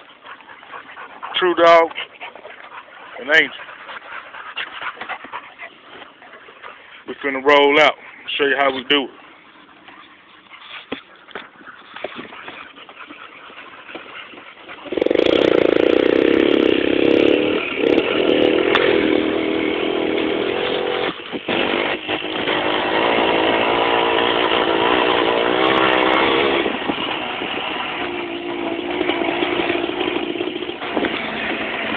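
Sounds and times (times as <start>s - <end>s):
motorcycle engine revving: 14.8s - 31.9s.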